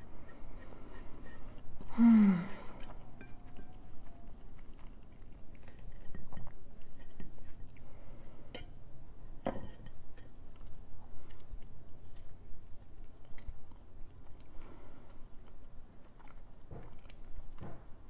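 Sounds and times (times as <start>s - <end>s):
person chewing: 0.5s - 8.5s, 10.2s - 18.0s
person humming: 1.9s - 2.8s
fork clinking: 8.5s - 8.8s.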